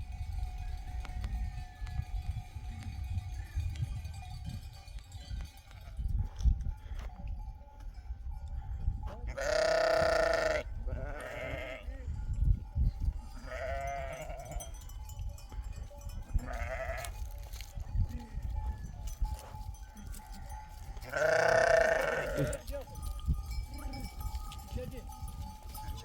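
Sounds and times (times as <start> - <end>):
sheep bleating: 9.3 - 11.9, 13.4 - 14.6, 16.4 - 17.1, 21.0 - 22.7.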